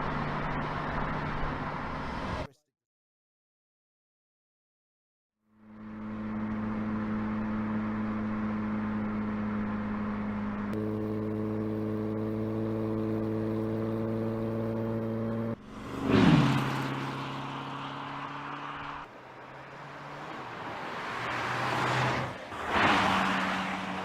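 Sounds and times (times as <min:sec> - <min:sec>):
car engine running: 0:05.6 - 0:16.0
car passing by loudly: 0:15.6 - 0:24.0.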